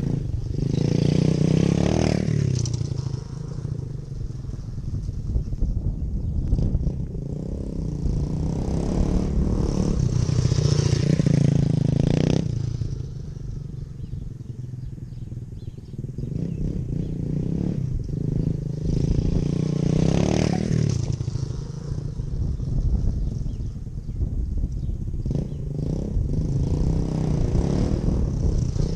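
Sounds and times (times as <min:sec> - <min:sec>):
dirt bike engine revving: 0:00.0 - 0:04.8, 0:06.6 - 0:13.1, 0:16.1 - 0:22.9, 0:25.2 - 0:28.9.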